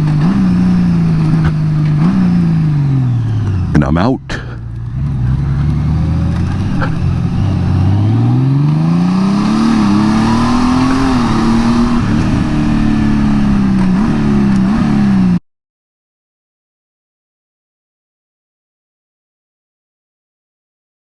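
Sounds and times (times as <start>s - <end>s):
motorcycle engine accelerating: 0.0s - 15.4s.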